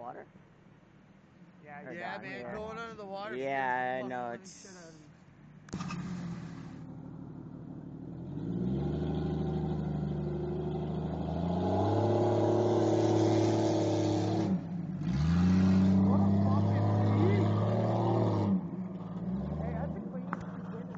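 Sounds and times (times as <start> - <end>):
engine revving hard: 8.2 - 18.6.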